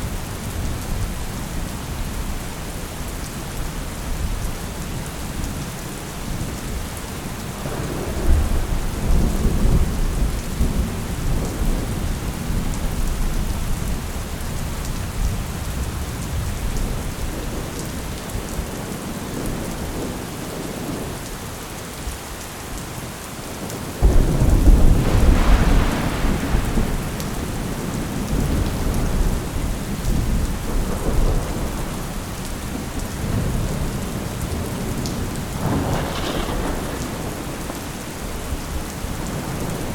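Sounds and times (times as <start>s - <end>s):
heavy rain: 0.0s - 39.9s
rolling thunder: 7.6s - 17.8s, 24.0s - 39.9s
loud thunderclap: 24.0s - 32.1s, 34.5s - 37.9s.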